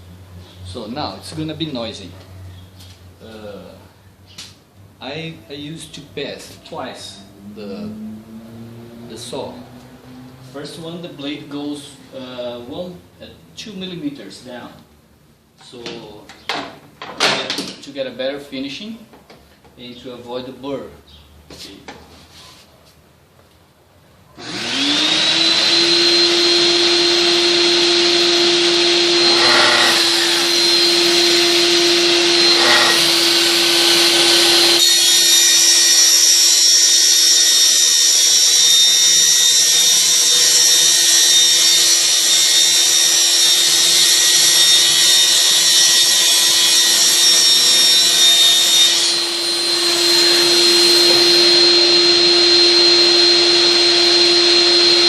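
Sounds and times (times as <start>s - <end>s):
circular saw cutting board: 24.4s - 55.0s.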